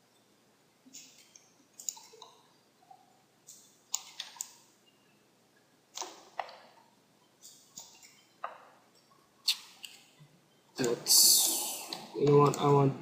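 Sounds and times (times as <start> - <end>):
computer mouse clicks: 0.9 - 2.4, 3.5 - 4.6, 5.9 - 6.7.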